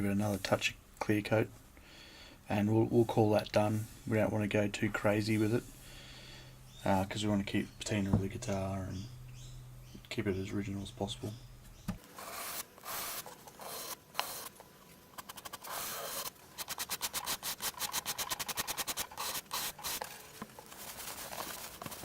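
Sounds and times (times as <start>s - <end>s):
sandpaper rubbing on wood: 12.2s - 14.5s, 15.3s - 22.0s.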